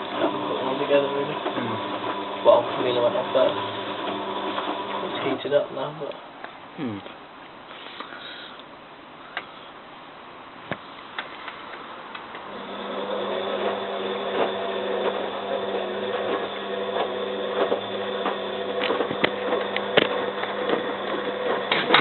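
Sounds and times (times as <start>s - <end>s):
washing machine motor hum: 0.0s - 5.7s, 12.4s - 22.0s.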